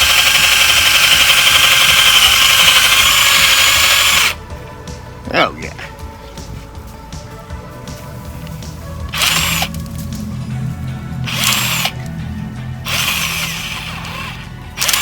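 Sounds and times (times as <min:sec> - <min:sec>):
power drill boring into wood: 0:00.0 - 0:04.4, 0:09.1 - 0:09.7, 0:11.3 - 0:12.1, 0:12.8 - 0:15.0.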